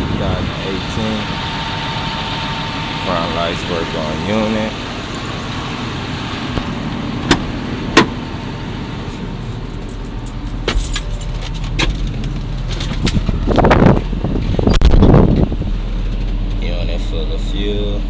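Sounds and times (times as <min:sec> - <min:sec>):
excavator diesel engine idling: 0:00.0 - 0:14.6
sharp clicks and knocks: 0:06.6 - 0:08.2.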